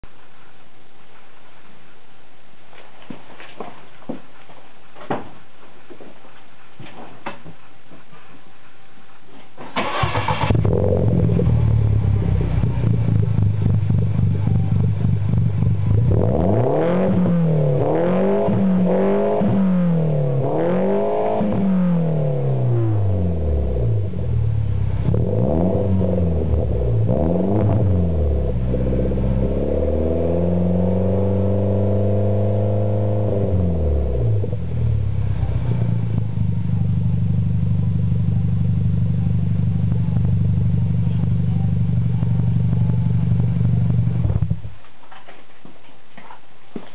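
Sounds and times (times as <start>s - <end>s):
car engine revving: 9.8s - 44.7s.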